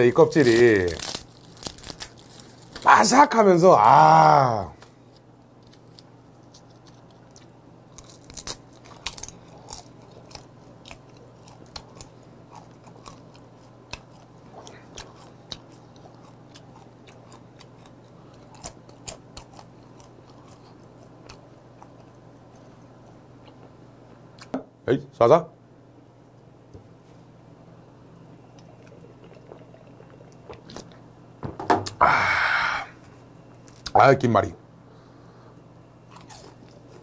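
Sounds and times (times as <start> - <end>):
steady low hum: 0.0 - 37.0
crisp crunches of chewing: 0.3 - 2.9, 5.0 - 23.8, 28.5 - 31.0, 33.6 - 34.0, 36.1 - 37.0.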